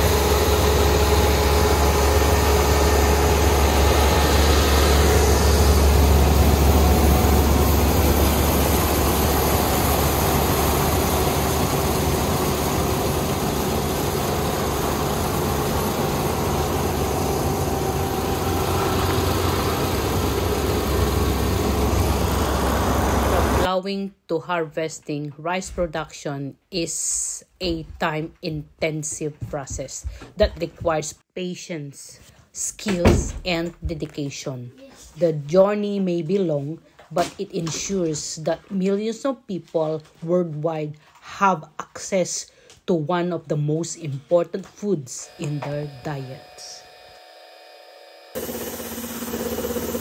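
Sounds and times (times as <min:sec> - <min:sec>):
harvester engine drone: 0:00.0 - 0:23.7, 0:45.3 - 0:50.0.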